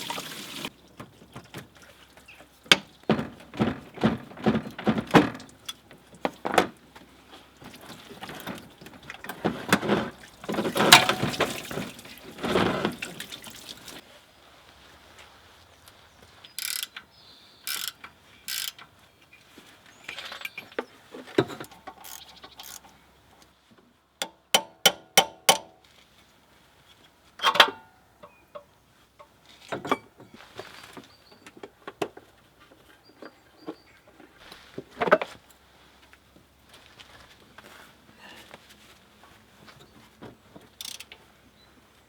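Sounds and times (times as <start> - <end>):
ratchet clicks: 16.6 - 17.0, 17.7 - 18.8, 21.9 - 22.9, 40.8 - 41.2
tools clinking on metal: 27.4 - 28.7.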